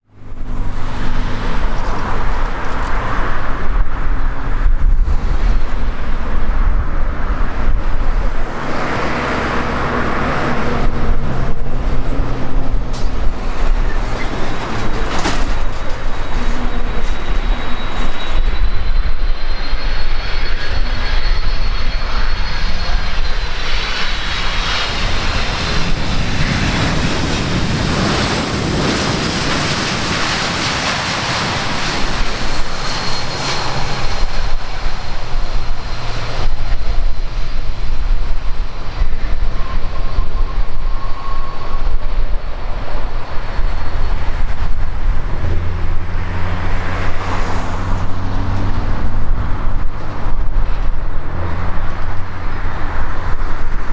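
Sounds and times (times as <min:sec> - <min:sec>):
jet engine rumble: 0:00.0 - 0:53.9.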